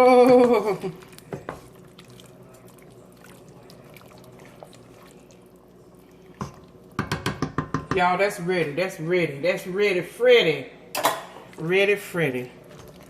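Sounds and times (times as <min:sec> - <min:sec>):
soup bubbling in a pot: 0:00.0 - 0:08.0, 0:11.3 - 0:13.0
low steady hum: 0:00.0 - 0:13.0.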